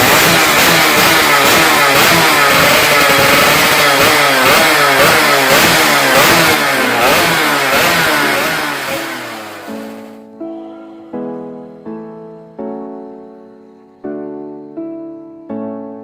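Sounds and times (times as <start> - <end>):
two-stroke motorcycle engines revving: 0.0 - 10.2.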